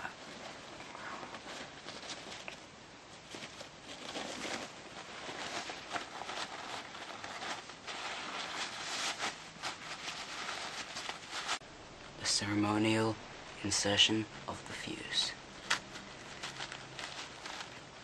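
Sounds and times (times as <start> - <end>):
paper towel rustling: 0.0 - 11.6, 14.8 - 18.0.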